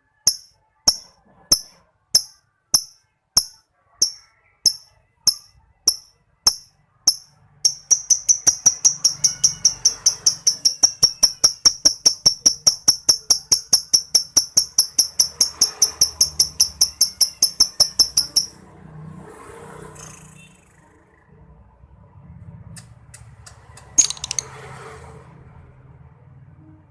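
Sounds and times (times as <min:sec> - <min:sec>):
lovebird clicking chirps: 0:00.3 - 0:18.6, 0:22.8 - 0:24.5.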